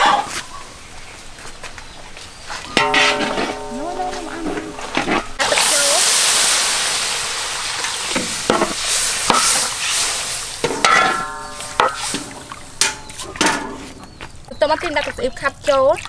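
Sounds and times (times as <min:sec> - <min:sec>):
metal spatula scraping wok: 0:02.8 - 0:05.6, 0:07.8 - 0:14.1
water hitting hot wok sizzling: 0:02.8 - 0:14.0.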